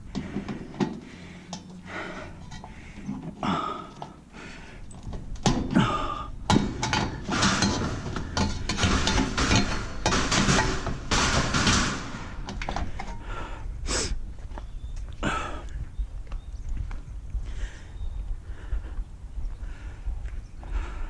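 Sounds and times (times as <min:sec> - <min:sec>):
metal scraping and rattling: 0:00.0 - 0:04.2, 0:04.9 - 0:13.4
scrap metal clanks and knocks: 0:00.0 - 0:04.2, 0:04.9 - 0:13.4.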